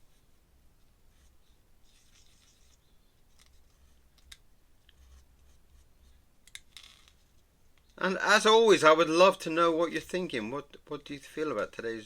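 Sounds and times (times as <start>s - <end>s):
pen and paper clicks and rustles: 1.9s - 5.6s.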